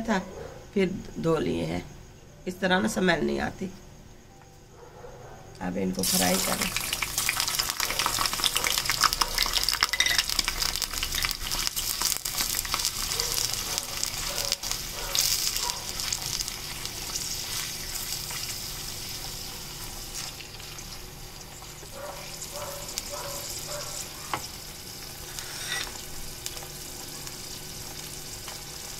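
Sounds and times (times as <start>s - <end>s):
meat sizzling in hot fat: 5.9s - 28.9s.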